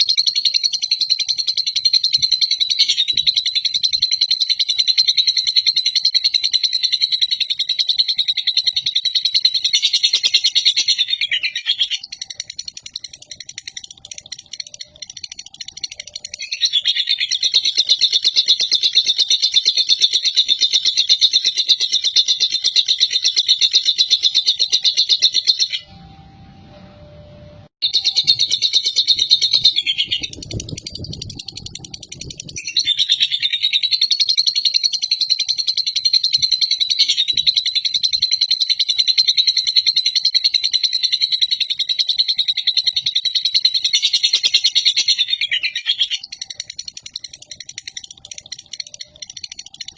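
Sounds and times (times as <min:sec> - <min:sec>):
lovebird chattering song: 0:00.0 - 0:25.9, 0:27.8 - 0:49.9
short tone: 0:25.8 - 0:28.4.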